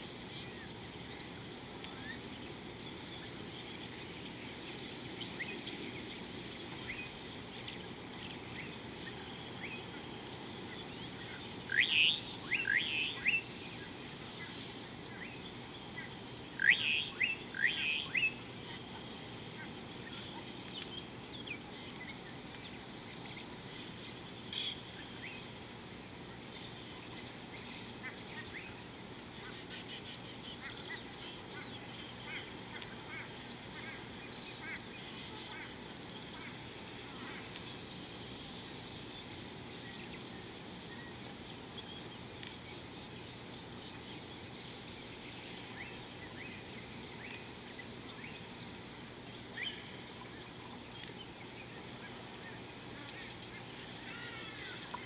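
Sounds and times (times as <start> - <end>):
outdoor background noise: 0.0 - 55.0
birds chirping: 0.2 - 55.0
sharp sweeping bird calls: 0.4 - 18.8.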